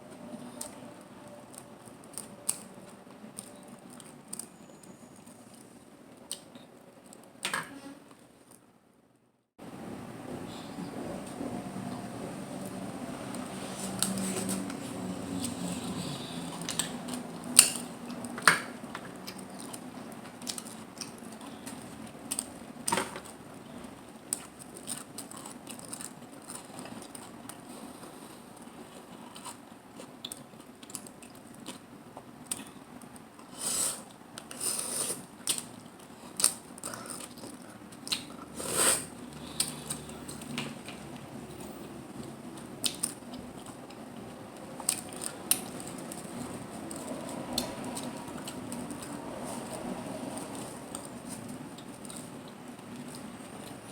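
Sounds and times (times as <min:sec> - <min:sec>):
chewing: 0:12.6 - 0:22.6, 0:23.2 - 0:53.9.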